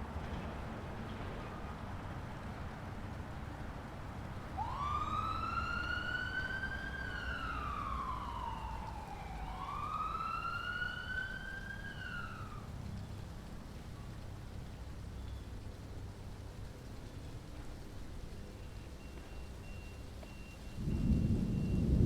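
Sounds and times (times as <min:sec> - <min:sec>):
siren wailing: 0:04.5 - 0:12.7.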